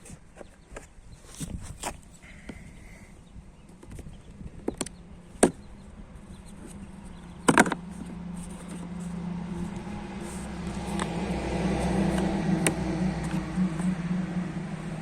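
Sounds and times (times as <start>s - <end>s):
car engine starting and idling: 4.8s - 15.0s.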